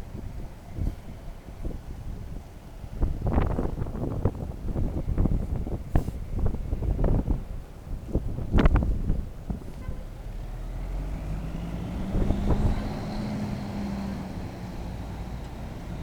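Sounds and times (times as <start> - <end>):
wind buffeting microphone: 0.0 - 16.0
truck diesel engine running: 10.4 - 16.0.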